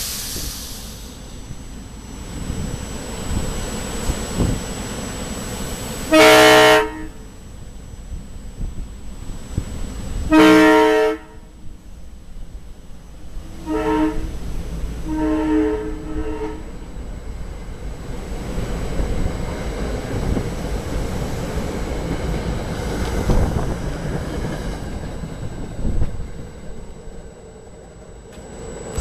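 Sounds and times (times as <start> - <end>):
train passing with clattering wheels: 0.0 - 29.0
train horn blast: 6.1 - 7.3, 10.2 - 11.6, 13.4 - 14.4, 15.0 - 16.8.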